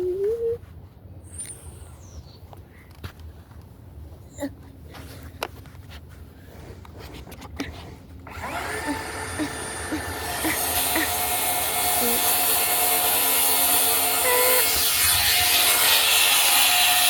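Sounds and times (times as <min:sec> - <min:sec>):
power saw cutting plywood: 0:08.3 - 0:17.0.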